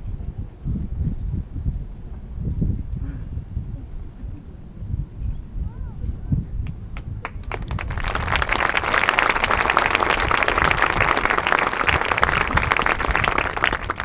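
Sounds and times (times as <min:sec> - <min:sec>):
crowd applauding: 0:07.2 - 0:14.0.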